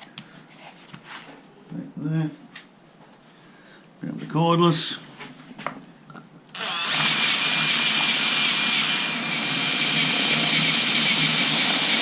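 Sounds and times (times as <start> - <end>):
cordless drill whining: 6.5 - 12.0.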